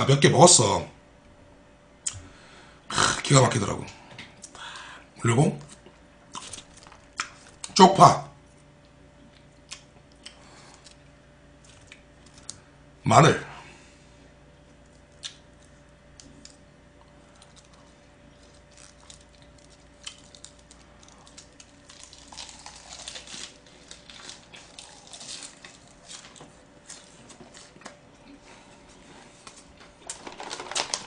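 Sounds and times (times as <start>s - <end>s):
cabbage crunching: 5.7s - 7.8s, 14.9s - 31.0s
cabbage leaf rustling: 18.4s - 27.8s, 29.3s - 31.0s.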